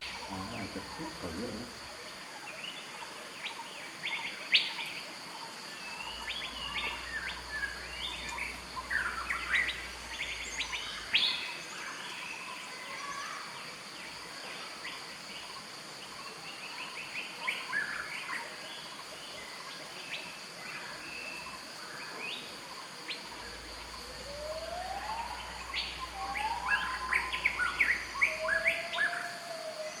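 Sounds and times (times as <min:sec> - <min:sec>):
wild birds chirping: 0:00.0 - 0:30.0
rising whistled bird notes: 0:24.0 - 0:30.0.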